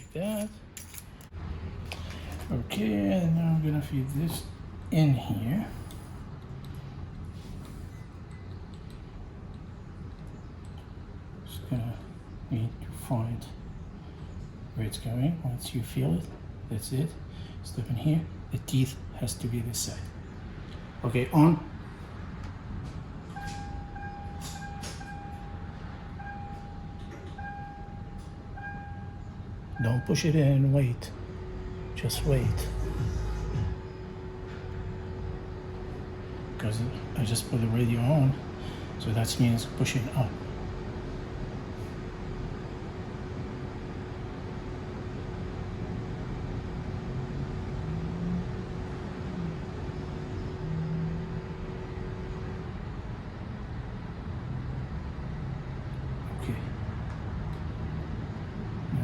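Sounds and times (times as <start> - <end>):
antenna motor whine: 15.8 - 59.0
low rumble: 31.0 - 36.6.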